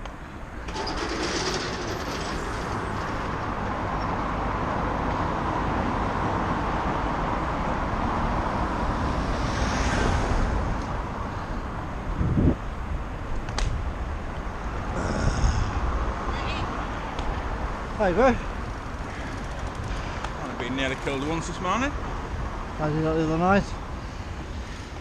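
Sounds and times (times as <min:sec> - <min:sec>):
bicycle tyres on road: 0:00.0 - 0:25.0
wind rushing: 0:07.8 - 0:13.1.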